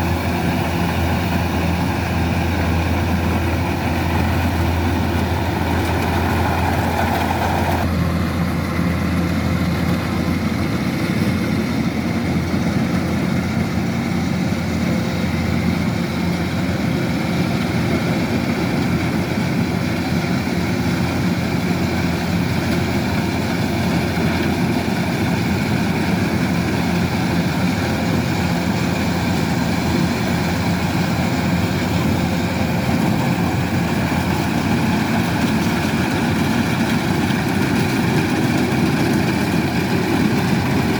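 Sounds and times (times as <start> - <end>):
machinery whine: 0.0 - 9.2
diesel engine running: 0.0 - 40.9.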